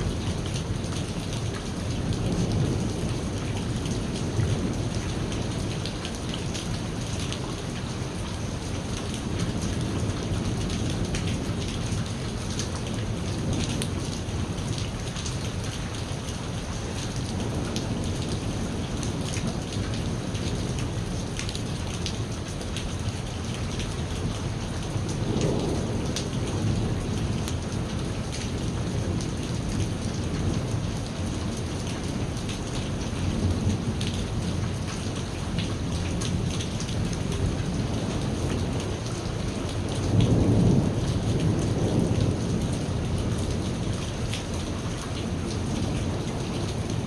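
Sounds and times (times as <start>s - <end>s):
heavy rain pattering: 0.0s - 47.0s
rolling thunder: 24.9s - 30.7s, 39.8s - 43.9s.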